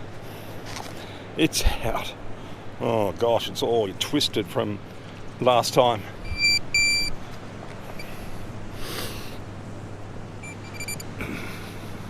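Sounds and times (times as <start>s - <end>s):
metal detector beeping: 6.2s - 7.2s, 7.9s - 8.2s, 10.4s - 11.2s.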